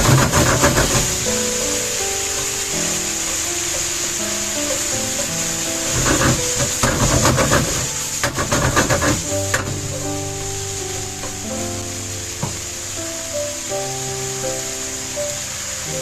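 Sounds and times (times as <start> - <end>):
utensils clattering and scraping: 0.0 - 11.4
background music: 0.0 - 16.0
noodles sizzling in a pan: 0.0 - 16.0.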